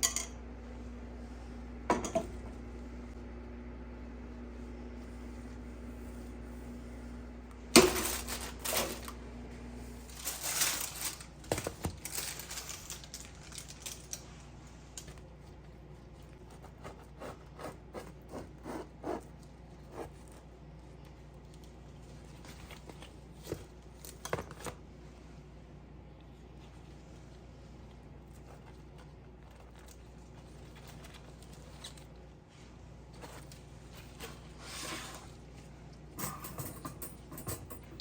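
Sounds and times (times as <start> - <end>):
appliance hum: 0.0 - 38.0
rustling: 10.0 - 15.2.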